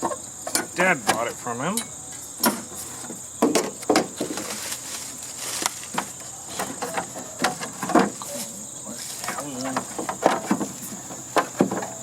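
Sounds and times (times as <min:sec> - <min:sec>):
insects chirring: 0:00.0 - 0:12.0
hand tools knocking and clattering: 0:05.9 - 0:08.2, 0:09.3 - 0:12.0.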